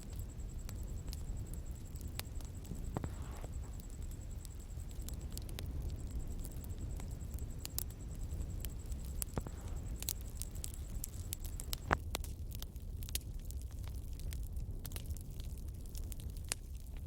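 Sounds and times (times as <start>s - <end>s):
bonfire crackling and popping: 0.0s - 17.0s.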